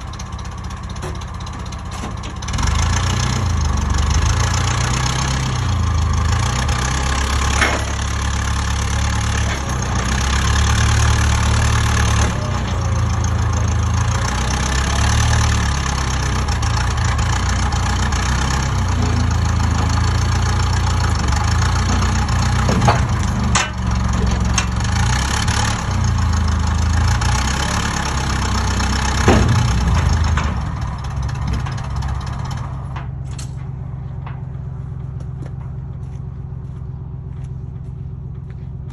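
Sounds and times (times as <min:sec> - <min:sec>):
engine running: 0:00.0 - 0:38.9
sharp metallic knocks: 0:18.4 - 0:25.7, 0:28.8 - 0:35.8.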